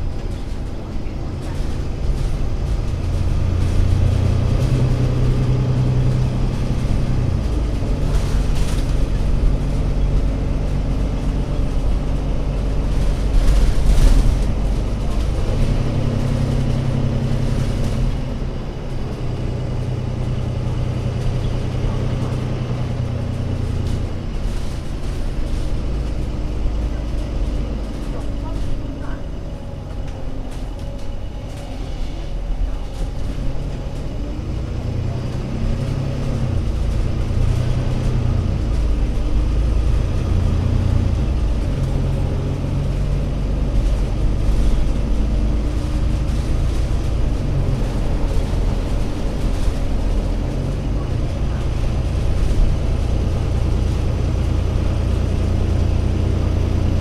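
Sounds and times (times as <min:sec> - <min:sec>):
bus engine running: 0:00.0 - 0:57.0.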